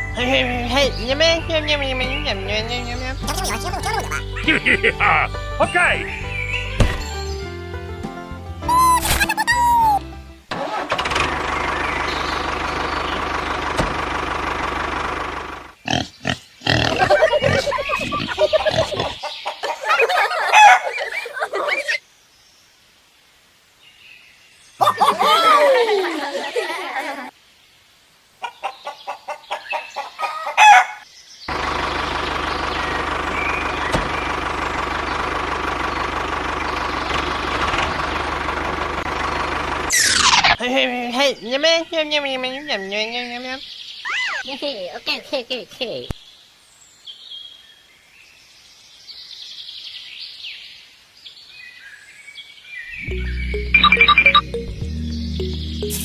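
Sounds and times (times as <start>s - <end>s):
clucking calls: 3.2s - 7.2s, 8.6s - 10.1s, 16.7s - 22.0s, 24.8s - 26.8s, 53.0s - 56.0s
engine idling with even knock: 6.8s - 7.2s, 12.6s - 15.6s, 31.5s - 39.9s.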